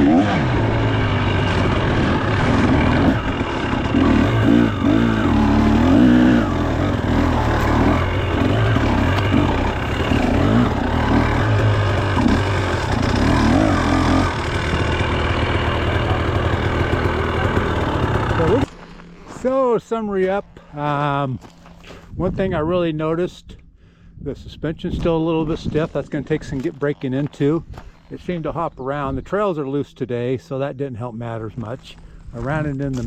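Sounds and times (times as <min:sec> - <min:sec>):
dirt bike engine revving: 0:00.0 - 0:20.2.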